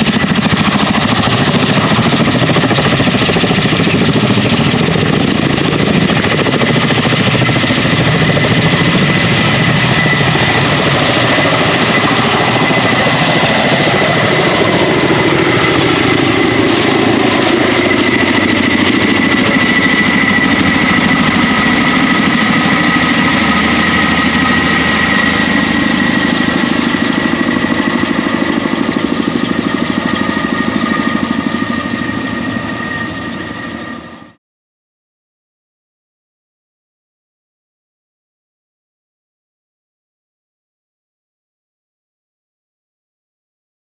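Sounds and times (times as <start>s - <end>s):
helicopter turbine whine and rotors: 0.0s - 34.4s.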